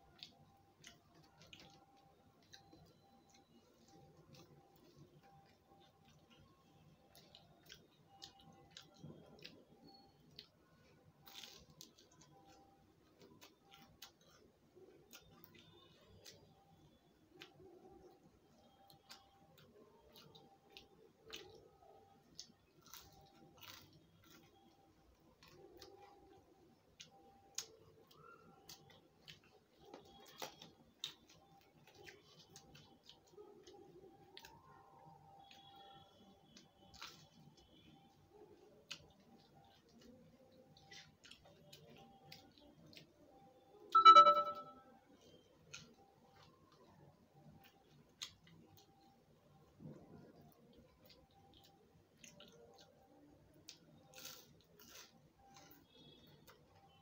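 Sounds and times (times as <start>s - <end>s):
person chewing crisp food: 0.0s - 43.6s, 45.2s - 57.0s
soft clicks and crackles: 0.0s - 57.0s
crisp crust tearing: 7.1s - 16.4s, 18.9s - 26.3s, 51.0s - 56.3s.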